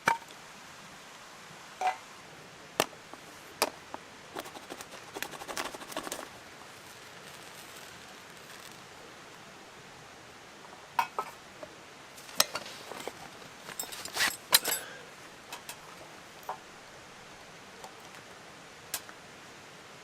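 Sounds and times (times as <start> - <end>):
clinks and knocks of camp utensils: 12.2 - 15.8.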